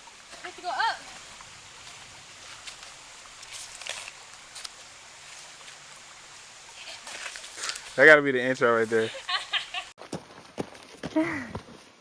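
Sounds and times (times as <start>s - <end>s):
faint steady hiss: 0.0s - 9.9s.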